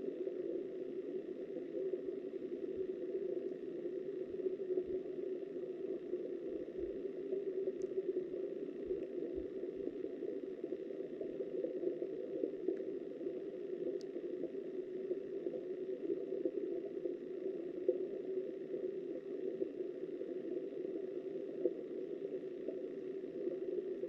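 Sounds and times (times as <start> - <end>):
muffled river water underwater: 0.0 - 24.0.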